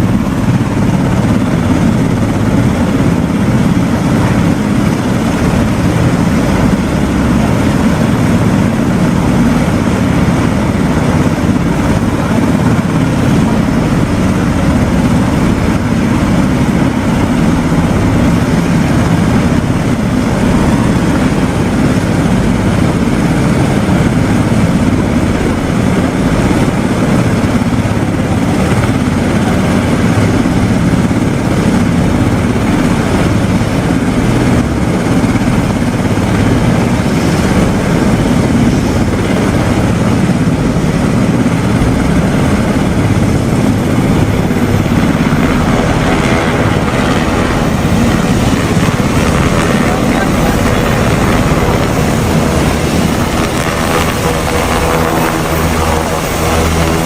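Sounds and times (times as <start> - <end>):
helicopter rotor and engine drone: 0.0 - 57.0.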